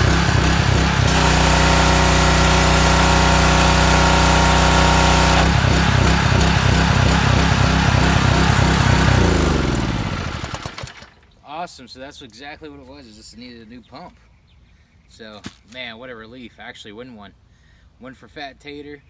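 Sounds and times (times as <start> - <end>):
pressure washer engine running: 0.0 - 11.2.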